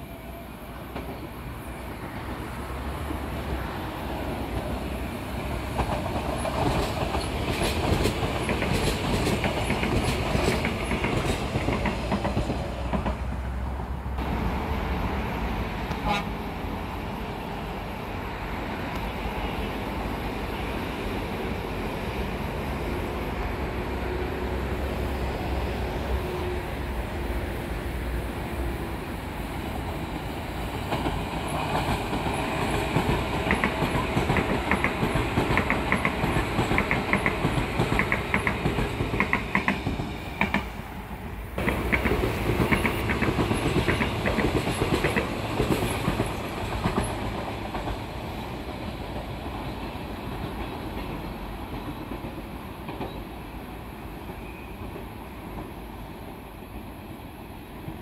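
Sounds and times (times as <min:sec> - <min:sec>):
train wheels clacking on rails: 0:04.4 - 0:13.5, 0:29.7 - 0:40.9, 0:41.6 - 0:53.5.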